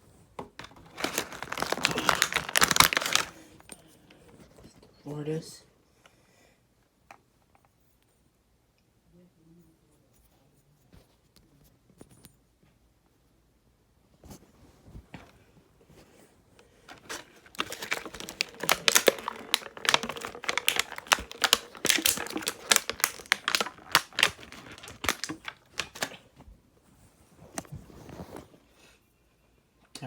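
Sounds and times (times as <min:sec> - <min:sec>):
plastic parts clicking and rattling: 0:00.5 - 0:03.8, 0:16.6 - 0:26.2.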